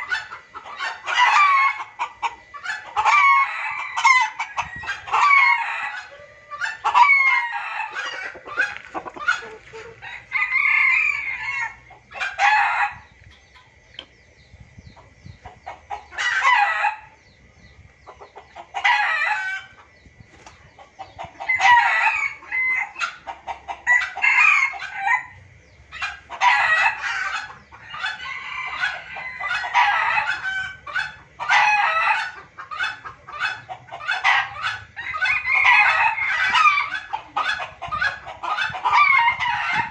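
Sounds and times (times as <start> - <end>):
junglefowl calling: 2.7 - 13.7.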